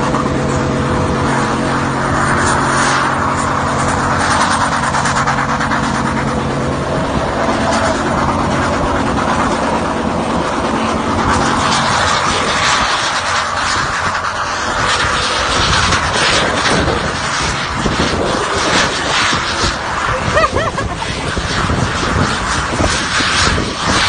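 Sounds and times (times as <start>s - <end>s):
vehicle engine hum: 0.0s - 24.0s
loud rushing hiss: 11.0s - 24.0s.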